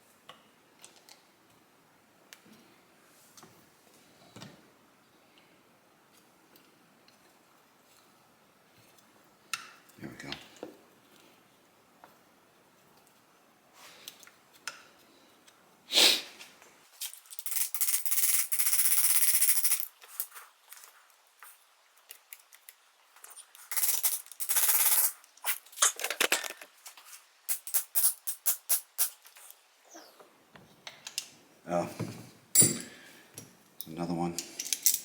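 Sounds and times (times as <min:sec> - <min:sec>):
metal parts and tools clicking: 0:17.0 - 0:20.3, 0:23.4 - 0:26.7, 0:34.4 - 0:35.0.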